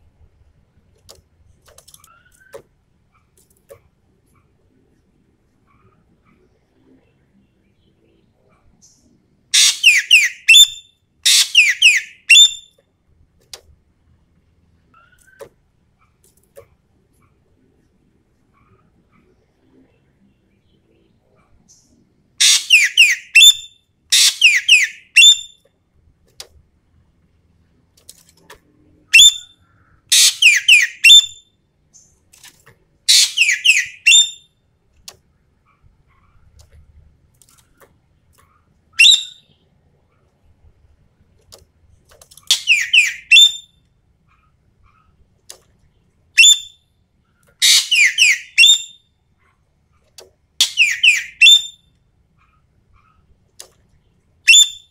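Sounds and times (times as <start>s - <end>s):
bird calling harshly: 9.6s - 12.7s, 22.4s - 25.5s, 29.2s - 31.4s, 33.1s - 34.4s, 39.0s - 39.4s, 42.5s - 43.7s, 47.6s - 49.0s, 50.6s - 51.8s.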